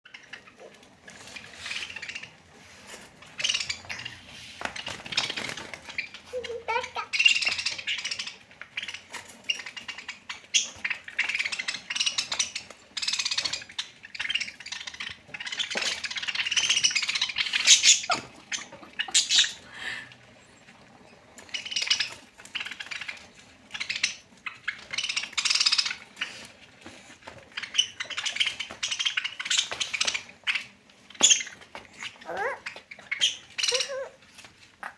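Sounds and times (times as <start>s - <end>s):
parrots squawking and screeching: 0.1s - 34.9s.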